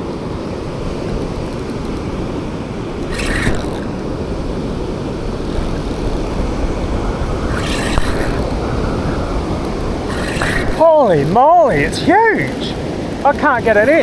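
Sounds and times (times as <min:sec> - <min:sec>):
surf breaking: 0:00.0 - 0:14.0
wind buffeting microphone: 0:00.0 - 0:14.0.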